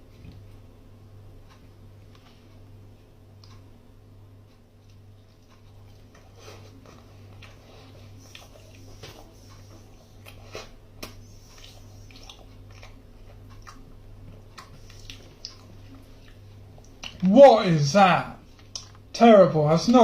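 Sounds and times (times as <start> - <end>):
steady low hum: 0.0 - 20.0
person chewing: 4.8 - 17.3, 18.5 - 19.0.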